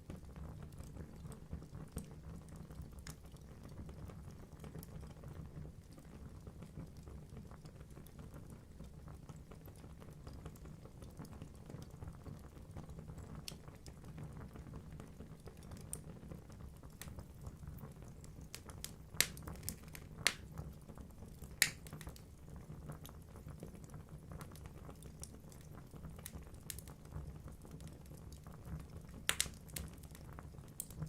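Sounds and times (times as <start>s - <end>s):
wood fire crackling: 0.0s - 31.0s
logs popping: 18.5s - 20.5s, 21.5s - 22.2s, 29.3s - 29.8s.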